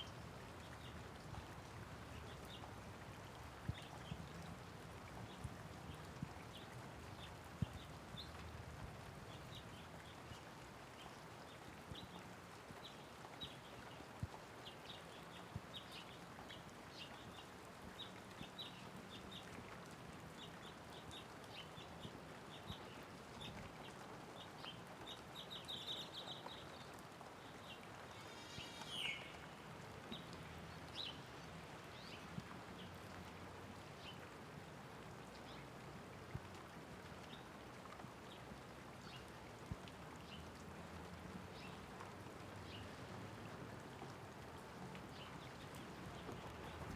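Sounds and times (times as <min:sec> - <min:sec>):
light rain falling: 0:00.0 - 0:46.9
birds chirping: 0:27.4 - 0:30.2.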